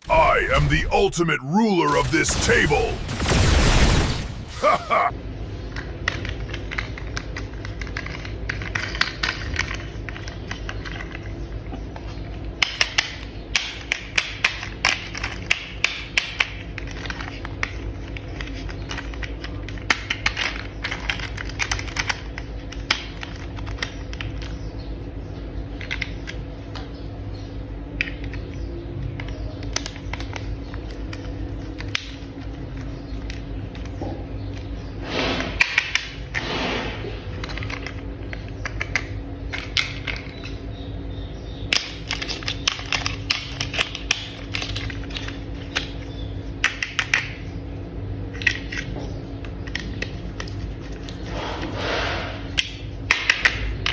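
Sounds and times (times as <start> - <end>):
plastic toy parts clicking together: 5.8 - 11.3, 12.6 - 24.5, 25.8 - 26.4, 37.4 - 40.6, 41.7 - 47.4.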